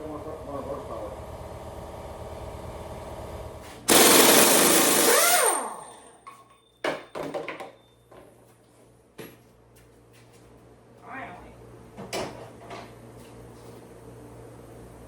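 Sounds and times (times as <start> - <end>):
impact wrench hammering: 3.9 - 6.1.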